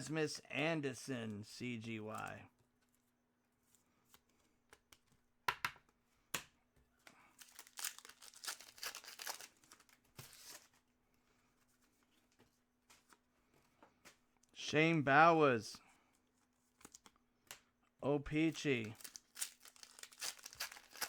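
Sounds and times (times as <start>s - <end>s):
foil wrapper tearing and crinkling: 7.4s - 10.7s, 18.8s - 21.0s.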